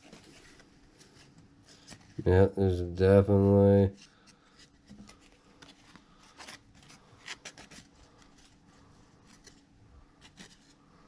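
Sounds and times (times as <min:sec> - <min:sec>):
card wrappers rustling: 0:03.9 - 0:11.0.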